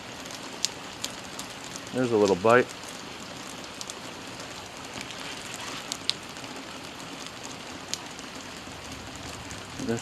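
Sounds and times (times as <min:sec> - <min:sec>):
steady rain hiss: 0:00.0 - 0:10.0
single raindrop ticks: 0:03.6 - 0:04.0.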